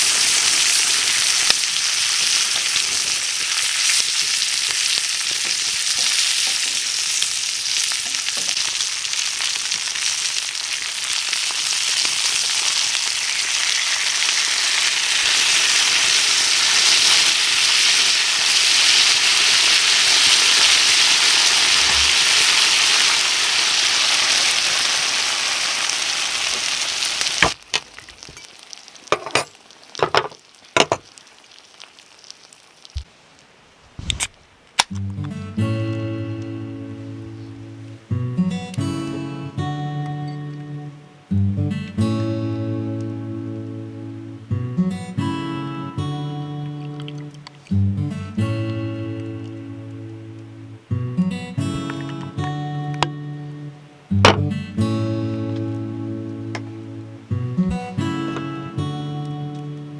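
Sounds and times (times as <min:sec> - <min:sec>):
food sizzling in a pan: 0:00.0 - 0:33.7.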